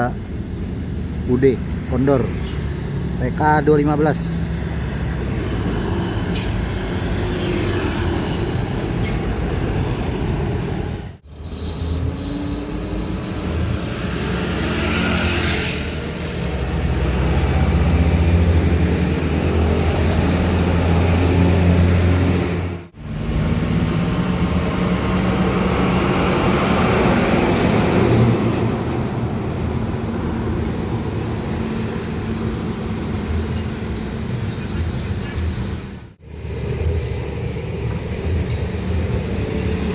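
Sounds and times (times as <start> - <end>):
diesel trucks passing: 0.0 - 39.9.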